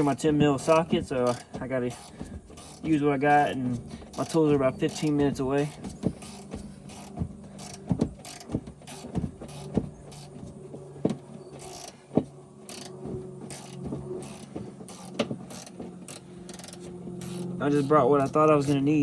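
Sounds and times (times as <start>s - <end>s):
wrench clicking and scraping on bolt: 0.0s - 10.3s, 12.7s - 18.8s
steady low hum: 0.0s - 19.0s.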